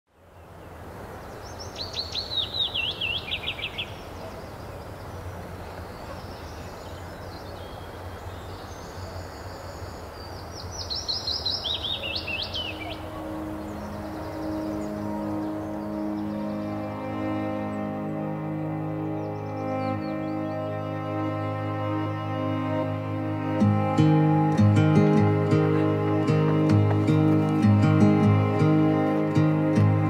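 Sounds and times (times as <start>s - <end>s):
songbird singing: 0.1s - 30.0s
steady outdoor rush: 0.4s - 30.0s
soft ambient music: 12.3s - 30.0s.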